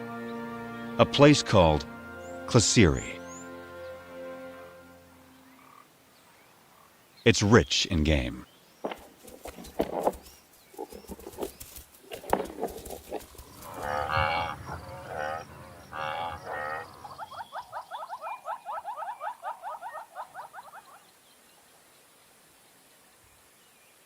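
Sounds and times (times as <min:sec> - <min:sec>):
animals lowing: 0:08.8 - 0:21.1
short repeated animal calls: 0:10.7 - 0:21.0.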